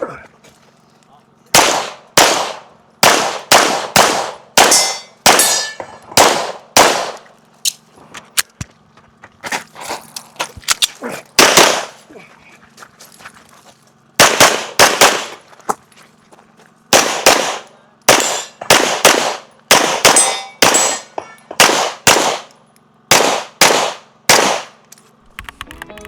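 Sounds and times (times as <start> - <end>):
rapid pistol shots: 1.5 - 7.2, 11.4 - 12.0, 14.2 - 15.4, 16.9 - 22.5, 23.1 - 24.8.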